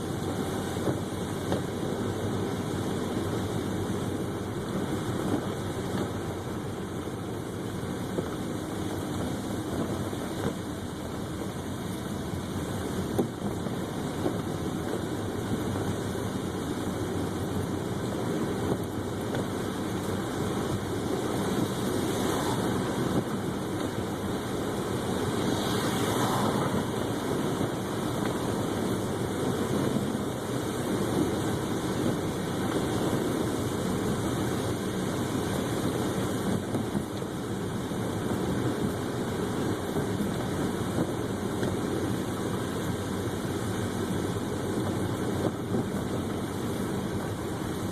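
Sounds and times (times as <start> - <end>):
car road and engine noise: 0.0 - 47.9
brief whooshes: 25.4 - 27.3.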